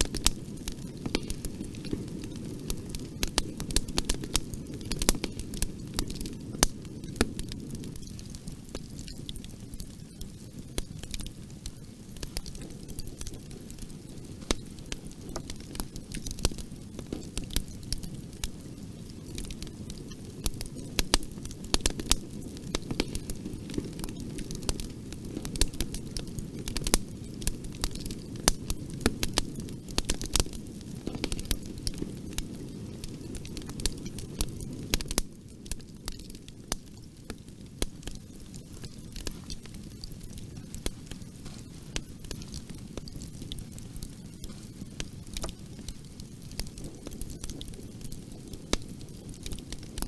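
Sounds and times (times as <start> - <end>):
low rumble of flames: 0.0 - 50.0
wood fire crackling and popping: 0.0 - 50.0.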